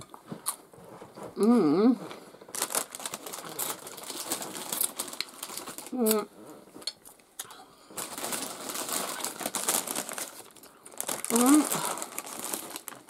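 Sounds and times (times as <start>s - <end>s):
person humming: 1.4s - 2.1s, 5.9s - 6.3s, 11.2s - 12.1s.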